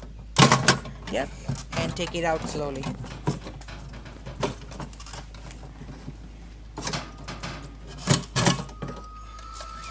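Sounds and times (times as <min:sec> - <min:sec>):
valve knocking and rattling in cistern: 0:00.0 - 0:06.2.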